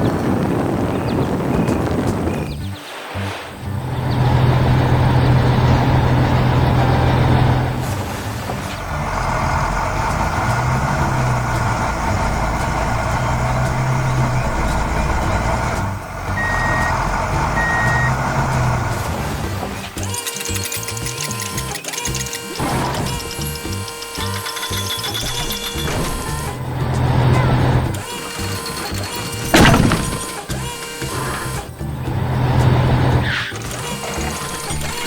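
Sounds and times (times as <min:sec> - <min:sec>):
heavy vehicle engine running: 0:03.4 - 0:35.0
reversing beeps: 0:16.4 - 0:18.2.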